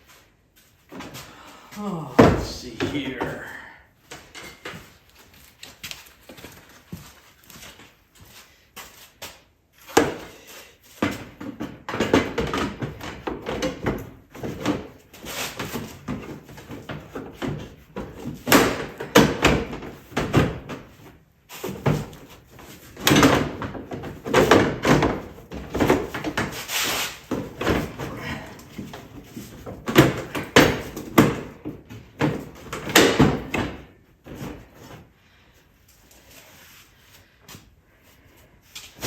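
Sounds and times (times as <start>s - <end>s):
hard parts knocking and rattling: 27.3s - 34.7s.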